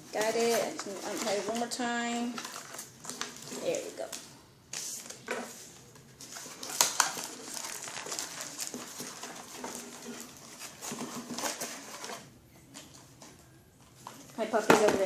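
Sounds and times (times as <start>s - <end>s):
toy packaging clicking and rustling: 6.2s - 15.0s.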